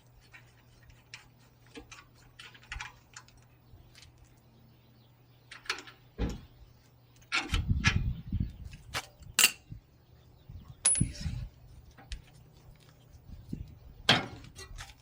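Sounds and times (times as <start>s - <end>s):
metallic clinks of wrenches and bolts: 10.8s - 11.4s.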